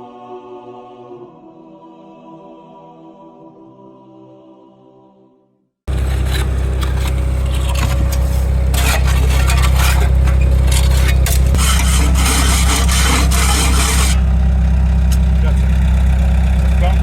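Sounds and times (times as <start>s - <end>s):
dirt and steel scraping: 5.9s - 16.9s
heavy diesel engine under load: 5.9s - 17.0s.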